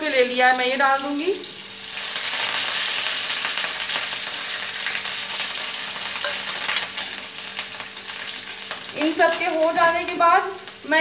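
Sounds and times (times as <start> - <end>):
leaves sizzling in hot oil: 0.0 - 11.0
metal spatula scraping a pan: 6.2 - 7.4.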